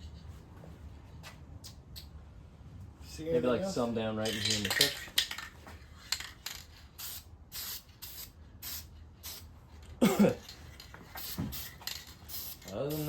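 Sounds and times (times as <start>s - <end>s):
spray can hissing bursts: 7.0s - 9.5s, 11.2s - 13.0s.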